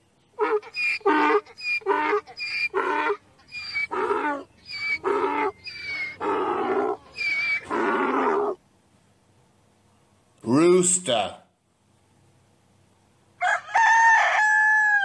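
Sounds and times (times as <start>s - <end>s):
donkey braying: 0.4s - 8.6s.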